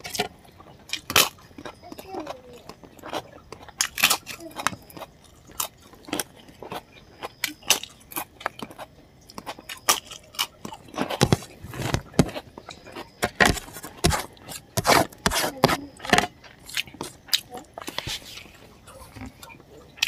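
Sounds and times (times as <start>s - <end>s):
wet chewing and lip smacks: 2.6s - 13.2s
fingers squishing rice in gravy: 2.9s - 20.0s.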